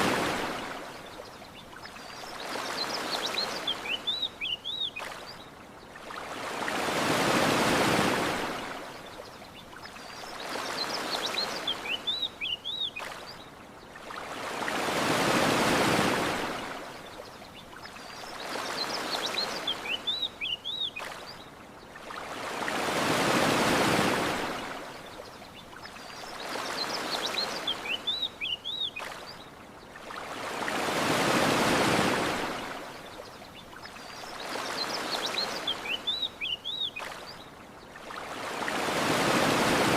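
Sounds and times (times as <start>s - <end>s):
ocean waves washing ashore: 0.0s - 39.9s
small birds chirping: 0.8s - 6.0s, 8.9s - 14.0s, 17.0s - 22.0s, 24.8s - 30.0s, 32.9s - 38.0s.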